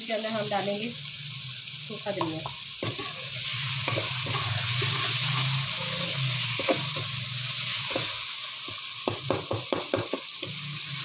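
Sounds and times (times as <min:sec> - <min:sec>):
spices sizzling in oil: 0:00.0 - 0:11.0
metal spoon scraping a pan: 0:02.8 - 0:08.2.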